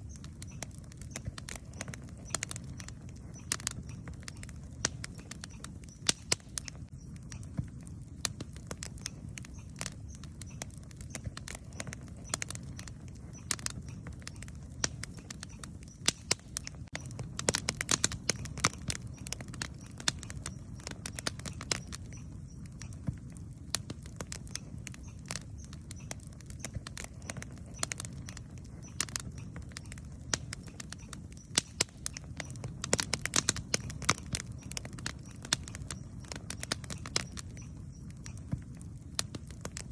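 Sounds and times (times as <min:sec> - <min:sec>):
campfire crackling and popping: 0:00.0 - 0:39.9
low rumble of burning fire: 0:00.0 - 0:39.9.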